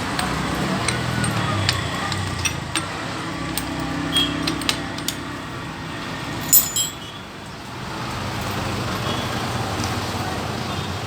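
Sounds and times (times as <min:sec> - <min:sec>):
metallic clinks of tools: 0:00.2 - 0:05.3, 0:06.4 - 0:07.1.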